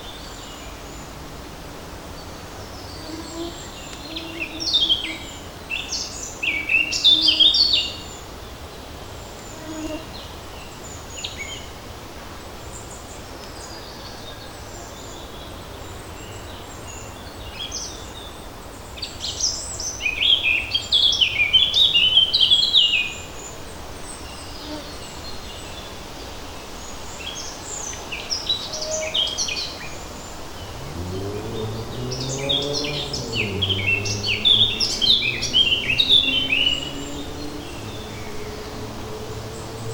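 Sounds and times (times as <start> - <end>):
light breeze through forest: 0.0 - 39.9
songbirds singing: 0.0 - 39.9
low hum rising in pitch: 30.4 - 39.9.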